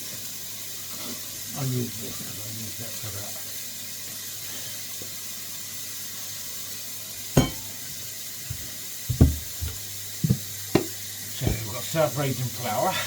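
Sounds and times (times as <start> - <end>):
vegetables sizzling in a wok: 0.0 - 13.0
kitchenware clunking: 7.4 - 7.9, 8.5 - 11.8.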